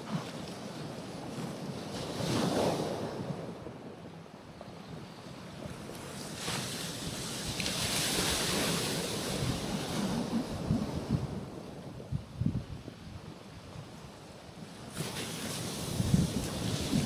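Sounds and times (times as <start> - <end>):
waves washing over rocky shore: 5.4 - 11.9, 13.8 - 17.0.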